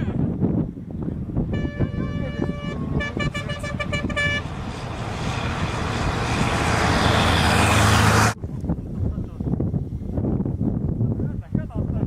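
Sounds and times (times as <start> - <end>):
car horn short blasts: 1.5 - 4.5
fast car rushing past: 3.3 - 8.4.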